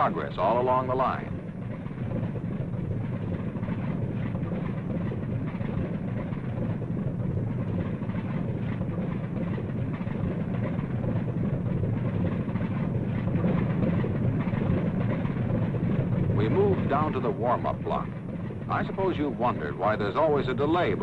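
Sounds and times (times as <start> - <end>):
propeller plane engines rumbling: 0.0 - 21.0.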